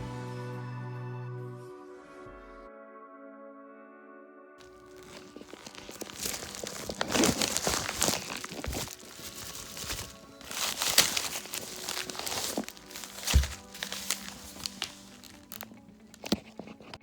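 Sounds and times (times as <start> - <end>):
quiet background music: 0.0 - 17.0
rustling and crinkling: 4.6 - 17.0.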